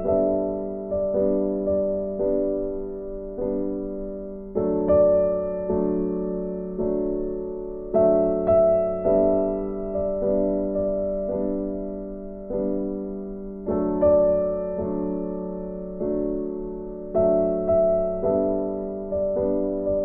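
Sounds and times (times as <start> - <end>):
soft piano chords: 0.0 - 20.0.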